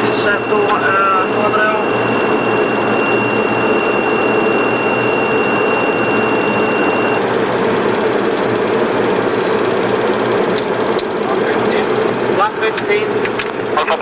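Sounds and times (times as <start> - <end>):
thin high whine: 0.0 - 7.4
jet engine noise: 0.0 - 14.0.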